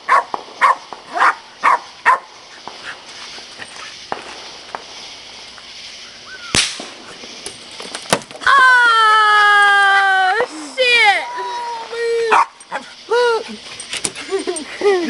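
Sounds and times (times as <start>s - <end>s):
dog barking: 0.1s - 2.3s, 12.3s - 12.8s
sharp bang: 6.5s - 7.2s.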